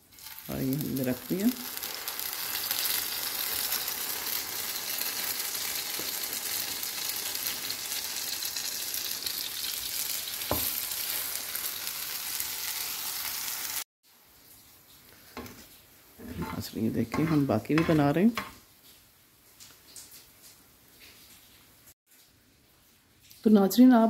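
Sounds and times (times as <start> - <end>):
bread sizzling in hot oil: 0.0 - 13.9.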